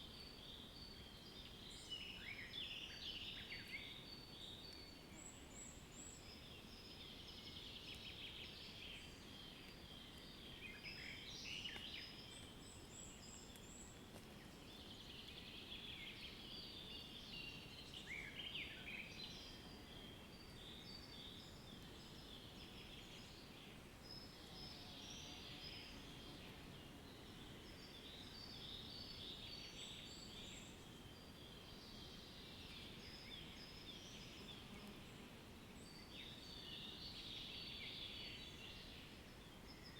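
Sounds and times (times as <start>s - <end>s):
faint background hiss: 0.0s - 39.9s
songbirds chirping and trilling: 0.0s - 39.9s.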